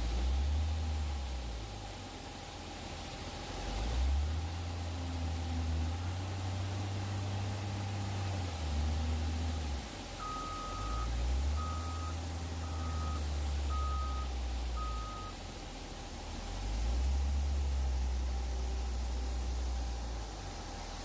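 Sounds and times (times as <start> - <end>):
truck diesel engine rumble: 0.0 - 21.0
reversing alarm beeping: 10.2 - 15.4.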